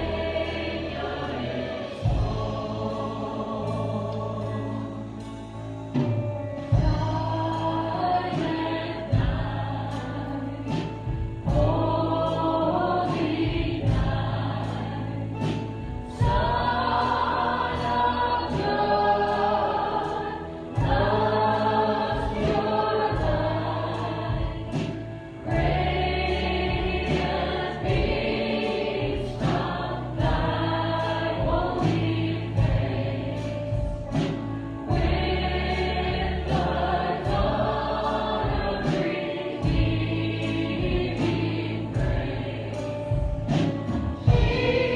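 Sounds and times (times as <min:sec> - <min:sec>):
band with bass and beat: 0:00.0 - 0:44.9
group singing worship song: 0:00.0 - 0:44.9.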